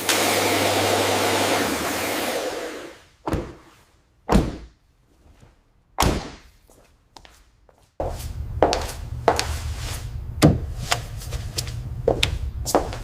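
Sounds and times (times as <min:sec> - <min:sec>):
sharp thuds: 0:03.3 - 0:03.7, 0:04.3 - 0:04.7.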